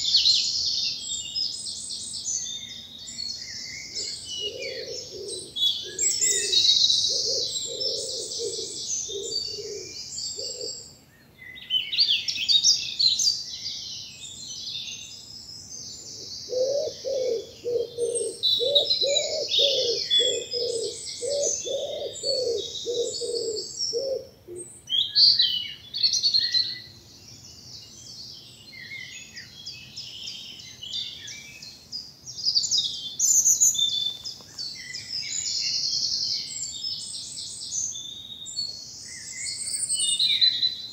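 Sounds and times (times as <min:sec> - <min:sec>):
songbirds singing and chirping: 0:00.0 - 0:40.9
low cooing: 0:04.0 - 0:10.8, 0:16.5 - 0:24.6.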